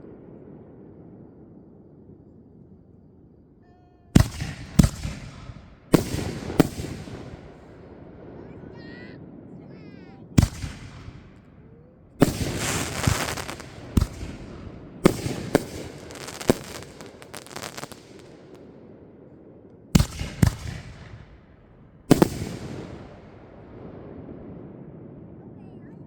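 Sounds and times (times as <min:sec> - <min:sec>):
fireworks bangs: 0:04.2 - 0:09.3, 0:09.9 - 0:18.7, 0:19.9 - 0:25.2
fireworks crackling fizz: 0:12.2 - 0:18.6, 0:22.1 - 0:23.2.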